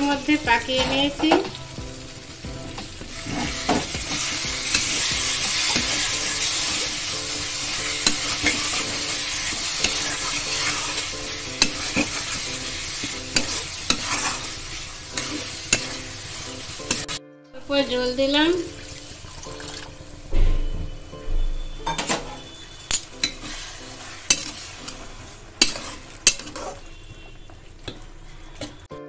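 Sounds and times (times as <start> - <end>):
masala sizzling in a metal pan: 0.0 - 28.9
spatula scraping a pan: 3.0 - 17.2, 22.2 - 27.5.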